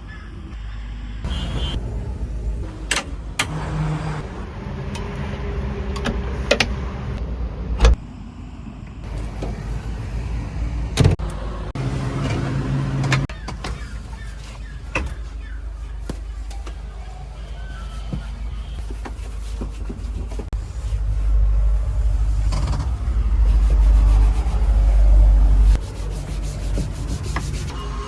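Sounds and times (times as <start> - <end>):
diesel engine running: 20.5 - 28.0.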